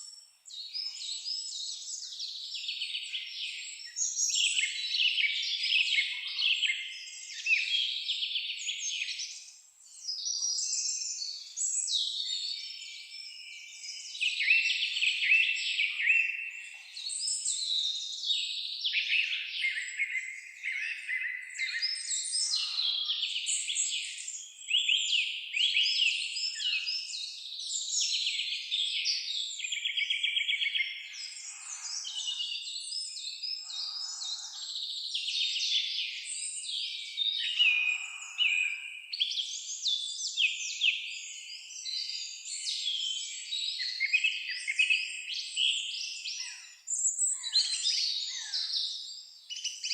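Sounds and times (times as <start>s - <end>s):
songbirds chorus: 0.0s - 49.9s
softer lower bird calls: 33.6s - 35.0s.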